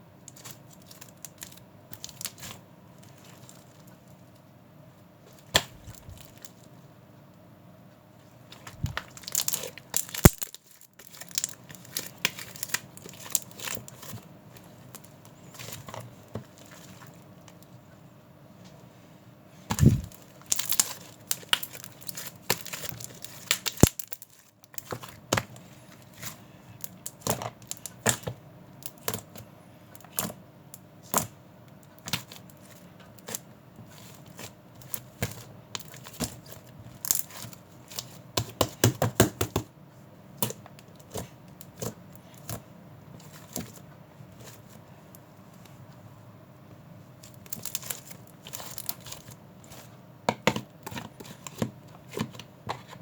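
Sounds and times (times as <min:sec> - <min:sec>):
sharp clicks and crinkling: 0:08.5 - 0:14.2, 0:19.7 - 0:25.6.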